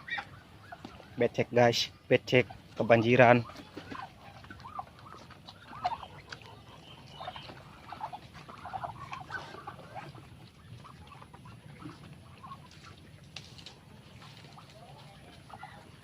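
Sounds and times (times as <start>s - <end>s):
poultry calling softly: 1.9s - 13.1s.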